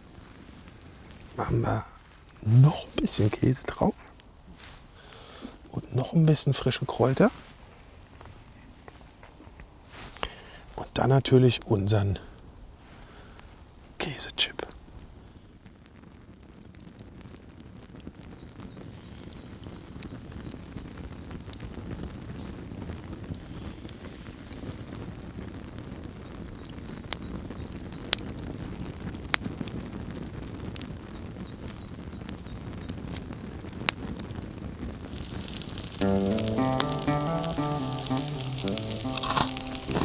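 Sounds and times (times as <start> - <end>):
fire popping and crackling: 0.0 - 4.3, 12.2 - 40.0
campfire burning: 0.0 - 5.8, 12.2 - 40.0.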